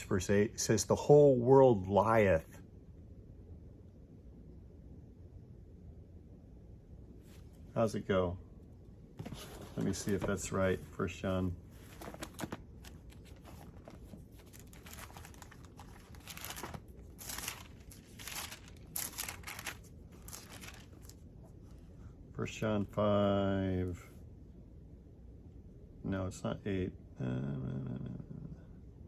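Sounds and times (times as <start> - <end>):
book pages turning and rustling: 9.2 - 11.1, 11.7 - 21.7.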